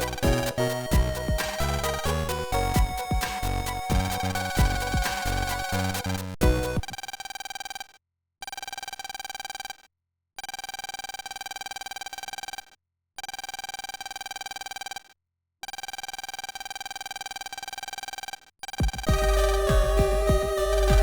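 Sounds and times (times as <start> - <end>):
fluttering electronic ringing tone: 0.0 - 7.9.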